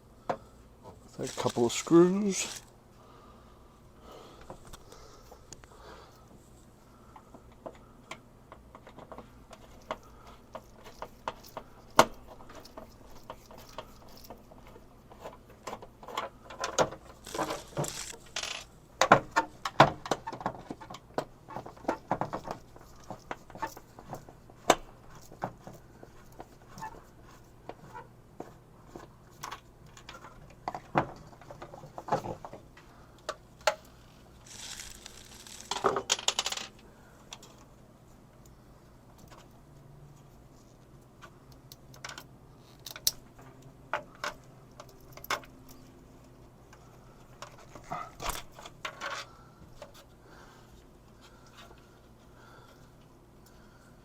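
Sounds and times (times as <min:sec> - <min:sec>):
scraping rustle: 0:01.0 - 0:02.7, 0:17.1 - 0:18.6, 0:34.0 - 0:35.8.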